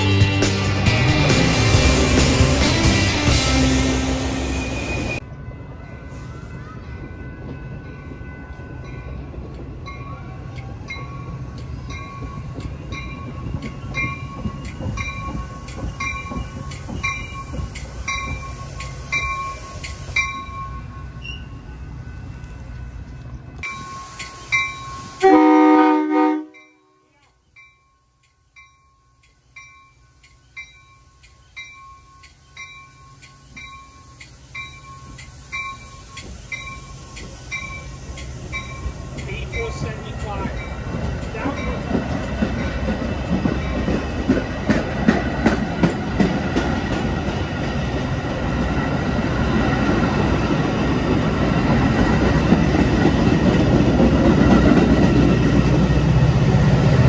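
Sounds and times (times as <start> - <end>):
train rumbling: 0.0 - 57.0
train horn blast: 25.2 - 26.9.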